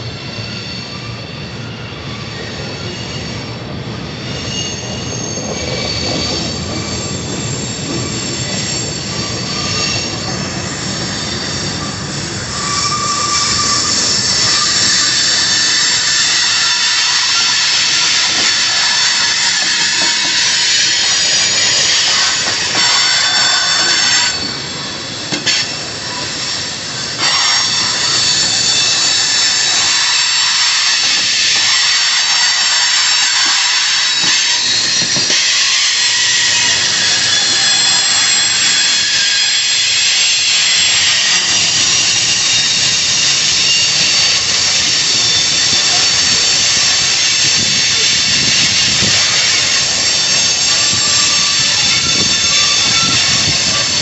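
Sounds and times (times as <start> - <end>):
train wheels squealing: 0.0 - 54.0
hiss: 12.3 - 54.0.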